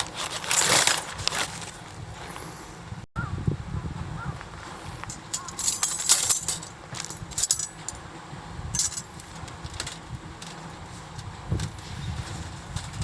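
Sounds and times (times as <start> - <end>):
thin metal parts clinking: 5.0 - 8.0, 8.8 - 10.0.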